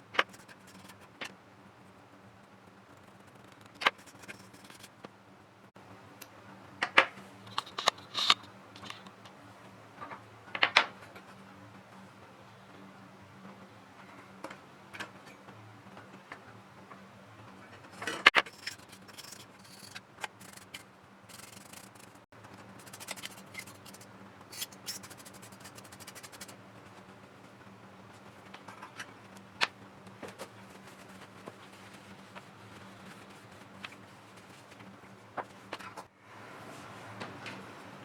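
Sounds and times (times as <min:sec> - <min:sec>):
hands and small tools clicking: 0:18.4 - 0:22.2, 0:22.8 - 0:26.5.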